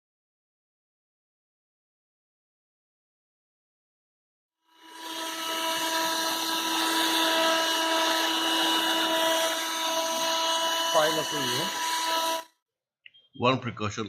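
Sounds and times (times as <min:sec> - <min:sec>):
vacuum cleaner motor whine: 0:04.8 - 0:12.5.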